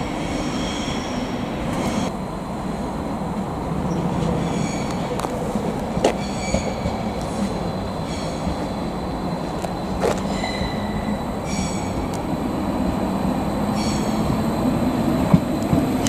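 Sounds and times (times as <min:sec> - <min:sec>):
train wheels squealing: 0:00.0 - 0:02.1, 0:03.9 - 0:05.2, 0:06.0 - 0:12.2, 0:13.5 - 0:14.7
train rumbling: 0:00.0 - 0:16.0.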